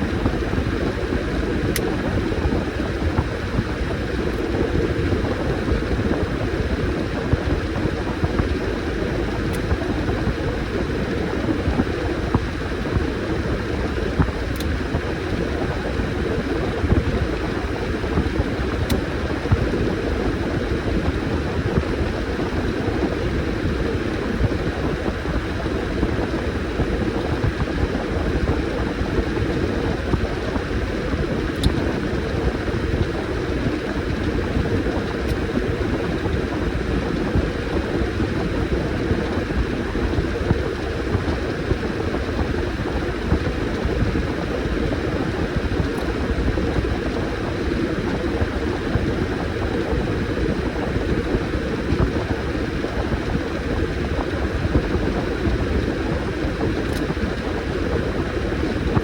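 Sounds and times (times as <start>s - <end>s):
washing machine running: 0.0s - 59.0s
faint clicks: 56.8s - 57.2s.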